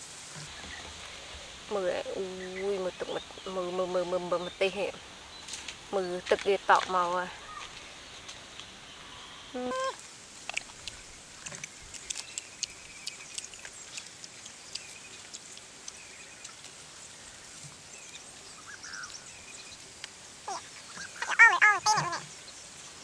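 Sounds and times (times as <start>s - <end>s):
steady insect hiss: 0.0s - 23.0s
birds chirping: 0.4s - 10.0s, 10.7s - 23.0s
mouth clicks of chewing fruit: 10.4s - 18.3s.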